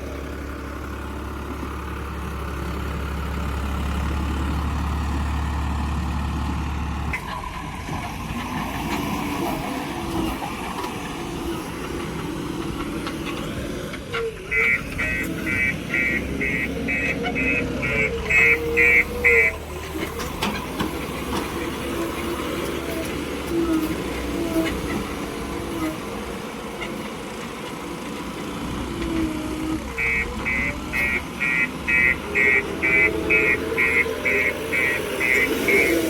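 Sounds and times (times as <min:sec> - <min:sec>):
vehicle engine running: 0:00.0 - 0:07.1, 0:14.6 - 0:36.0.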